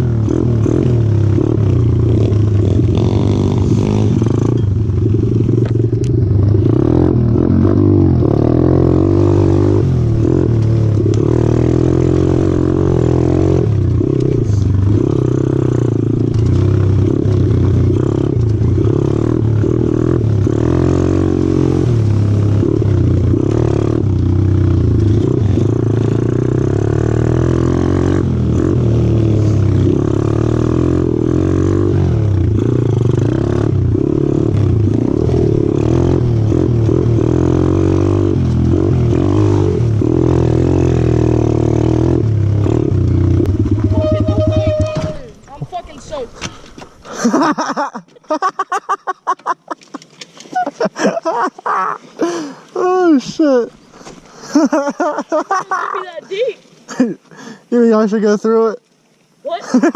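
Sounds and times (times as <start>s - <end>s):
pit bike engine revving: 0.0s - 46.2s.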